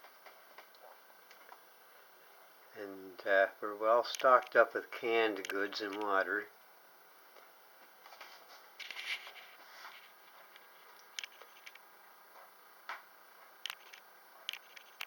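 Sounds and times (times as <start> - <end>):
brief rustle: 8.1 - 11.8.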